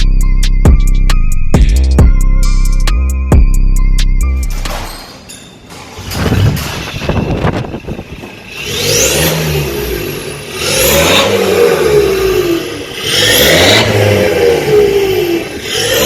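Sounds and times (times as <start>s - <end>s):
diesel car engine revving: 5.9s - 16.0s.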